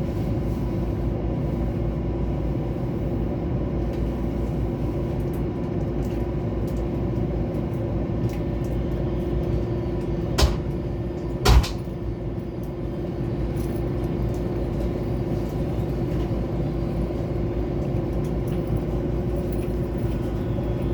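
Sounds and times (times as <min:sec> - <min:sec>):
train rumbling: 0:09.3 - 0:13.6
sharp loud knocks: 0:10.4 - 0:10.7, 0:11.4 - 0:11.8.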